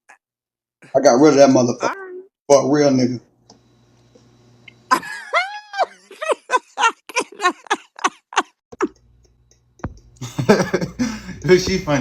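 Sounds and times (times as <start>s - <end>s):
high-pitched laughter: 4.9s - 9.1s.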